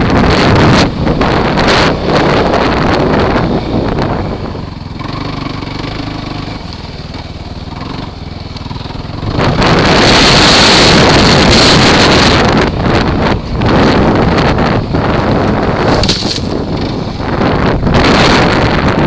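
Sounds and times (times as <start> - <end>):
atv engine running: 0.0 - 19.0
wind buffeting microphone: 0.0 - 19.0.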